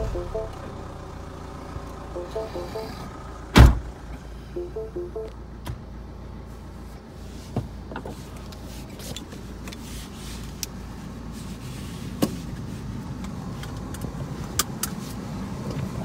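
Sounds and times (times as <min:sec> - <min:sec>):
diesel engine idling: 0:00.0 - 0:06.3.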